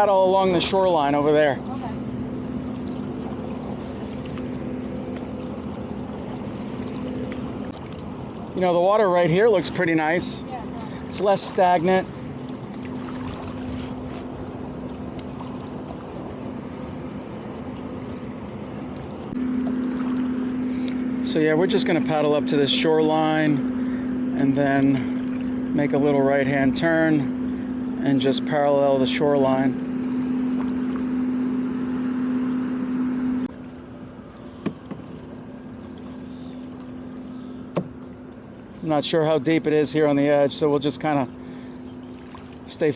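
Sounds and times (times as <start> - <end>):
distant boat engine drone: 0.0 - 42.9.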